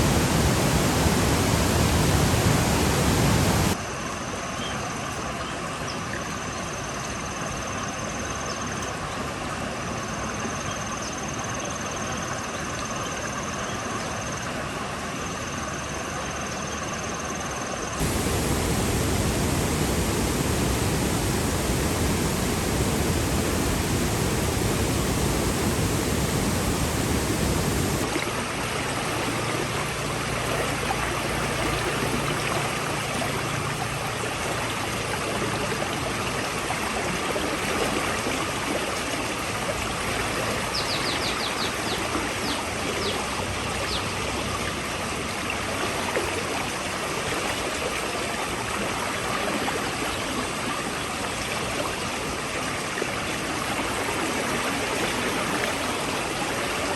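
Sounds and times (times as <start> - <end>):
floodwater rushing: 0.0 - 3.8, 18.0 - 40.6, 51.3 - 56.9.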